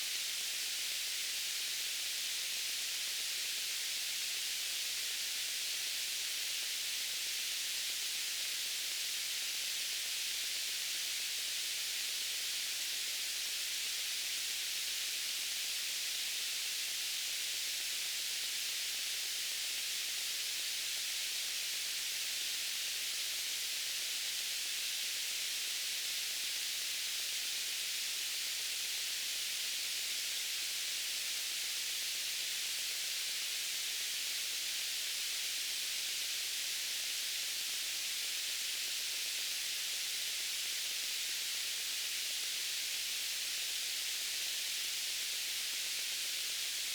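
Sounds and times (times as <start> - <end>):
white noise hiss: 0.0 - 46.9.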